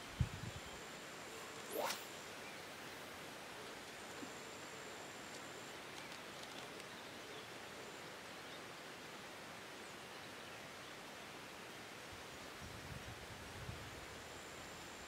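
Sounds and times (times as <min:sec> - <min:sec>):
low background hiss: 0:00.0 - 0:15.0
thin high tone: 0:01.6 - 0:02.2
faint ticks: 0:05.2 - 0:07.0.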